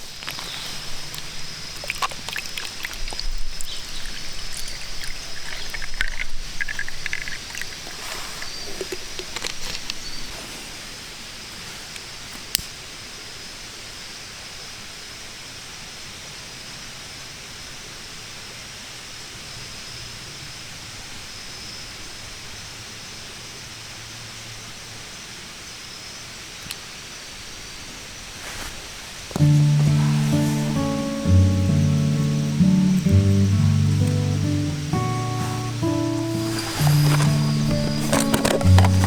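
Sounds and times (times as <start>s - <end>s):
outdoor background hiss: 0.0s - 39.0s
thin high tone: 29.4s - 39.0s.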